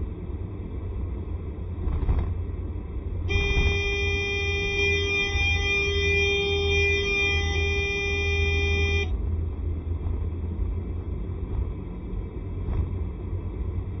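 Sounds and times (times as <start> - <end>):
wind and road noise: 0.0 - 14.0
held multi-pitch tone: 3.3 - 9.1.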